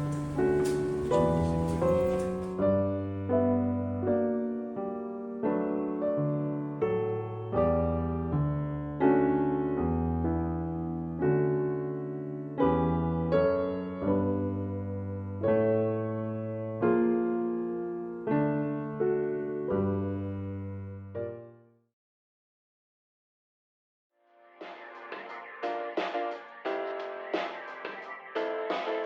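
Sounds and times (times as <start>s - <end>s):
slow piano chords: 0.0s - 21.8s.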